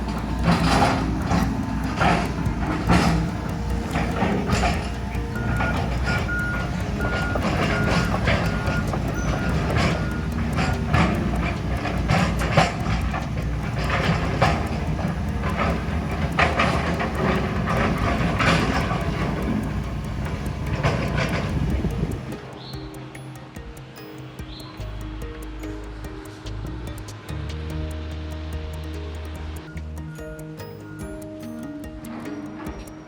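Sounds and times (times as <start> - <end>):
engine rumble: 0.0 - 22.6
reversing alarm beeping: 0.0 - 22.8.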